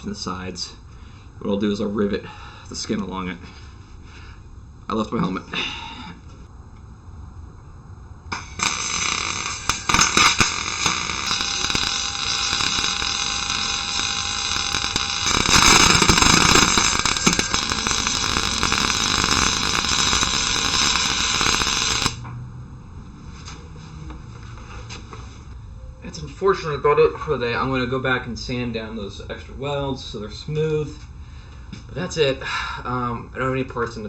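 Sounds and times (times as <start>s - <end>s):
electric welding arc buzzing: 8.3s - 22.3s.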